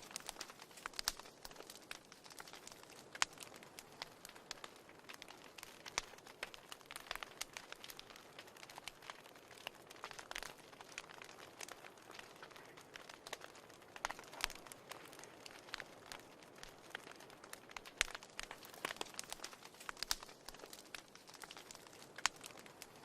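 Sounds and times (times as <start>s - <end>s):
hiss of burning: 0.0s - 23.0s
wood fire crackling: 0.0s - 23.0s.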